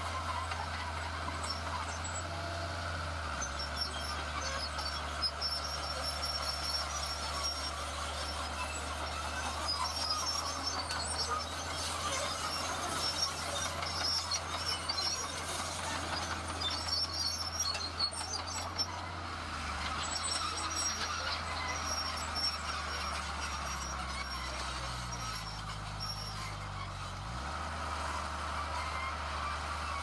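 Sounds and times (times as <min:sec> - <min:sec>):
diesel engine rumble: 0:00.0 - 0:30.0
metallic squeals and clinks: 0:03.4 - 0:27.2, 0:28.7 - 0:30.0.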